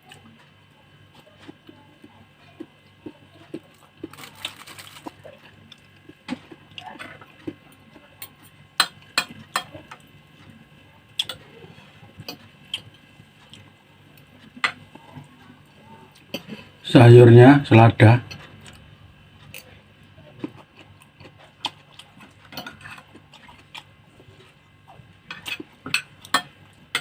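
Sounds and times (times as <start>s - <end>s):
crunch or rustle: 4.0s - 5.4s.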